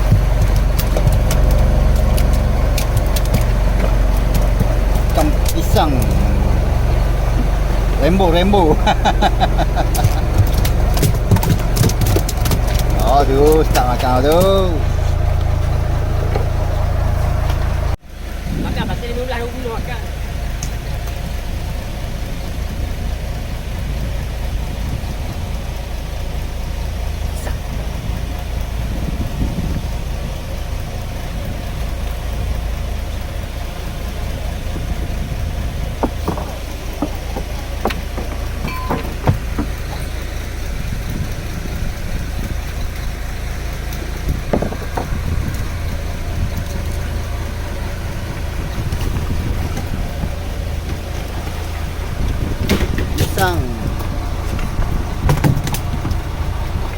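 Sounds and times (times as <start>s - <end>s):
boat engine droning: 0.0s - 56.9s
short knocks and clicks: 36.0s - 40.2s.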